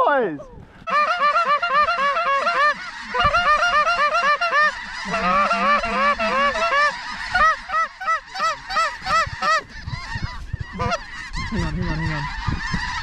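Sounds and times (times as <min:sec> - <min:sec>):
geese honking: 0:00.8 - 0:13.0.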